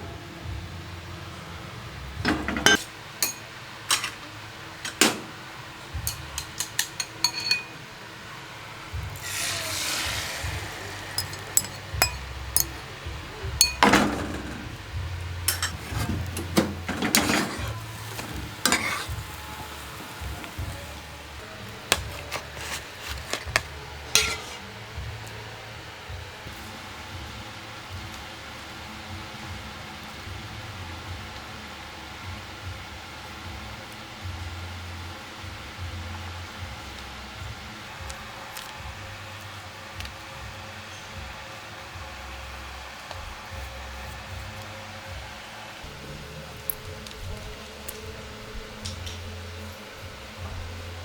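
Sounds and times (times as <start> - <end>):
utensils clinking against pots: 2.2 - 7.9, 9.2 - 14.8, 15.4 - 24.6
short hissing: 9.2 - 12.0.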